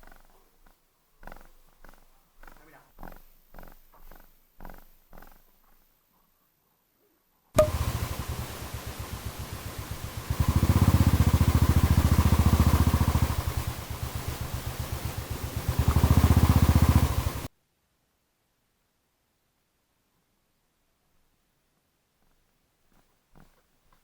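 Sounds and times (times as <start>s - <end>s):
motorcycle engine thumping: 7.6s - 17.5s.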